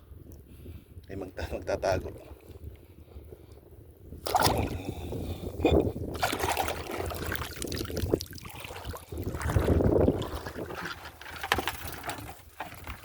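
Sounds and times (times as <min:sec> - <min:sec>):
shallow water splashing: 0:04.2 - 0:05.1, 0:06.0 - 0:13.0.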